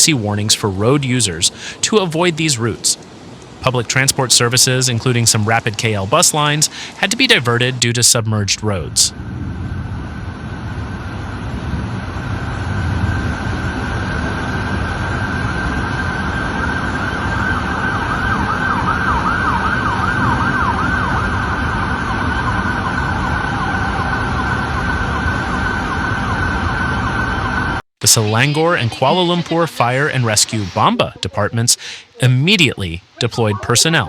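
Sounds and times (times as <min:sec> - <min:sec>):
background noise rush: 0:00.0 - 0:34.0
emergency vehicle siren yelping: 0:09.9 - 0:34.0.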